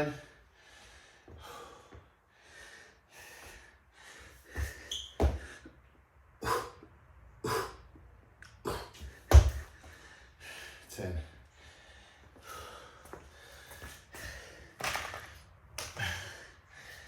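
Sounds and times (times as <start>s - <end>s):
man breathing heavily: 0.0s - 17.0s
hands and feet thumping floor: 9.0s - 9.8s.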